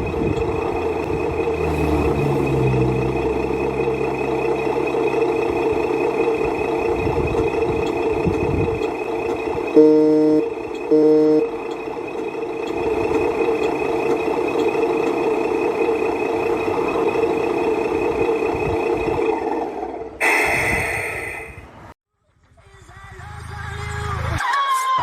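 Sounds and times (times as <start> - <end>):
truck engine running: 0.0 - 22.0
truck horn blast: 9.7 - 11.6
thin high tone: 9.7 - 12.5.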